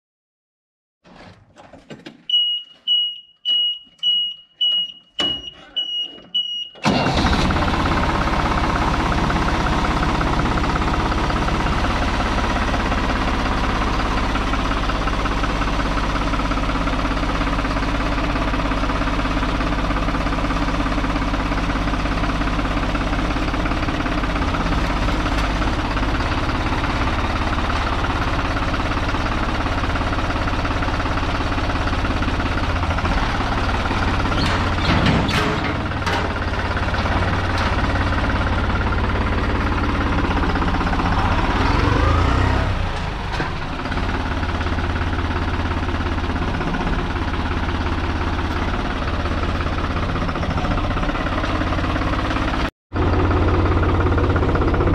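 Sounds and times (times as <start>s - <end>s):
tractor diesel engine idling: 2.3s - 54.9s.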